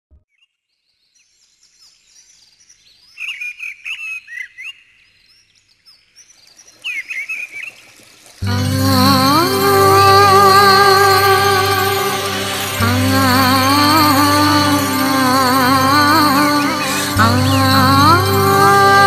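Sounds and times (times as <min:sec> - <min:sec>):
music: 0:08.4 - 0:19.0.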